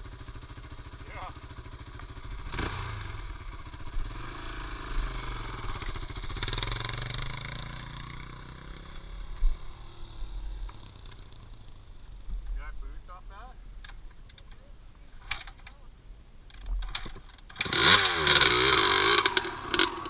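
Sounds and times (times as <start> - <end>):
dirt bike engine revving: 0.0 - 11.8, 16.9 - 20.0.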